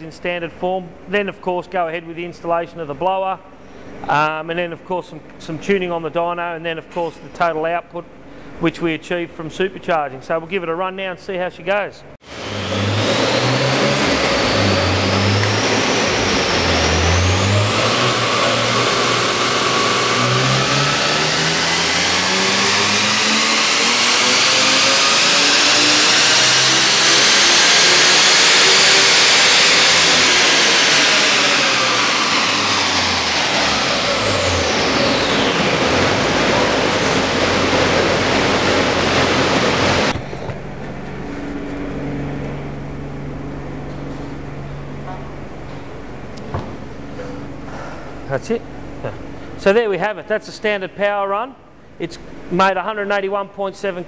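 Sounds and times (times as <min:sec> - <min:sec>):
car engine revving: 0:12.2 - 0:49.4.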